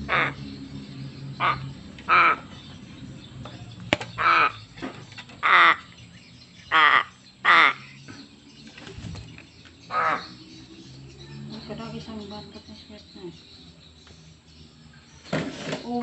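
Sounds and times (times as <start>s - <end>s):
crow cawing: 0.1s - 0.4s, 1.4s - 2.5s, 4.2s - 4.6s, 5.4s - 5.9s, 6.7s - 7.9s, 9.9s - 10.3s.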